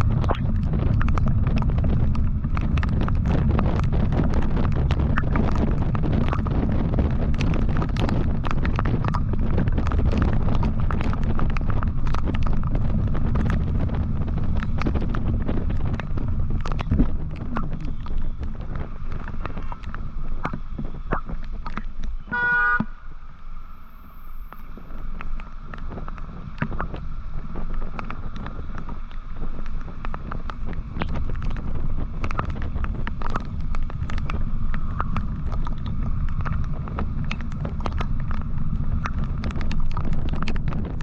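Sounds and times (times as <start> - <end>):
vehicle road and wind noise: 0.0 - 41.0
vehicle horn toot: 22.3 - 23.0.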